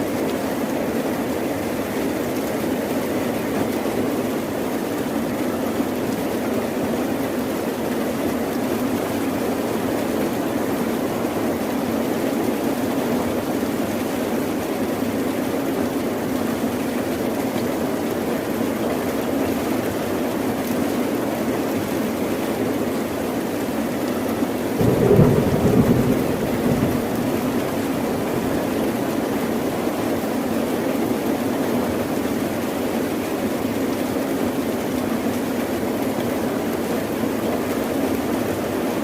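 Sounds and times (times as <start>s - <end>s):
heavy rain rushing: 21.2s - 39.0s.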